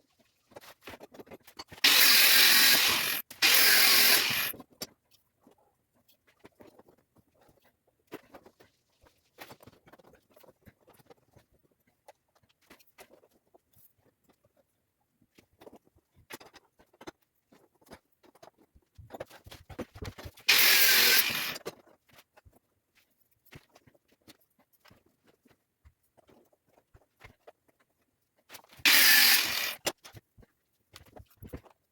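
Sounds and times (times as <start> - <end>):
loud harsh rasp: 1.8 - 4.5, 20.5 - 21.6, 28.9 - 29.8
clicks and scrapes on steel rebar: 28.6 - 30.2.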